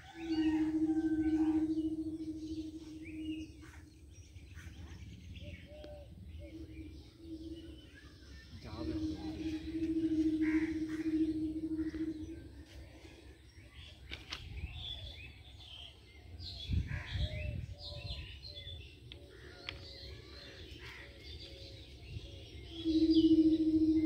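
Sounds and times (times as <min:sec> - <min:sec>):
low rumble: 0:00.0 - 0:13.0, 0:22.9 - 0:24.0
steady humming tone: 0:00.0 - 0:13.8, 0:21.8 - 0:24.0
small birds chirping: 0:00.0 - 0:24.0.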